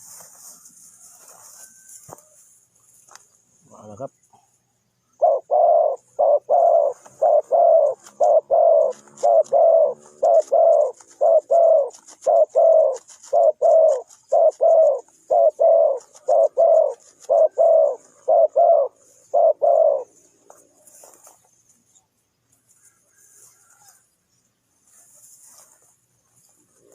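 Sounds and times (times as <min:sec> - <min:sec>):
dove cooing: 0:05.1 - 0:20.9, 0:26.5 - 0:26.9.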